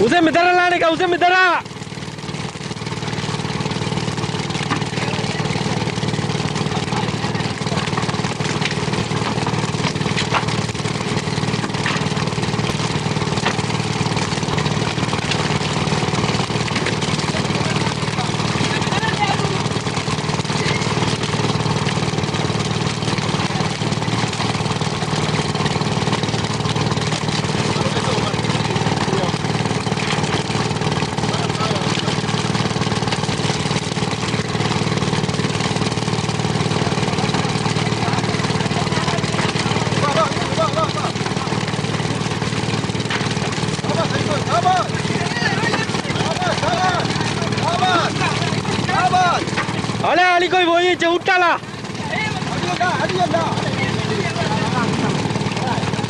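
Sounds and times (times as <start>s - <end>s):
boat engine throbbing: 0.0s - 56.0s.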